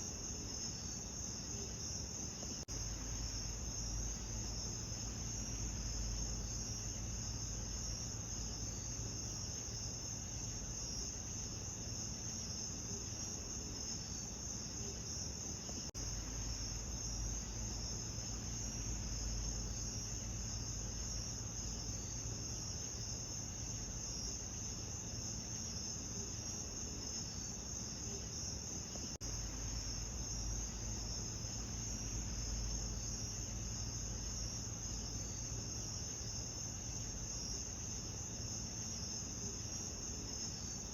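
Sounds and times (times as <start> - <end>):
crickets chirping: 0.0 - 40.9
low steady rumble: 2.7 - 12.0, 15.8 - 25.1, 29.2 - 38.5.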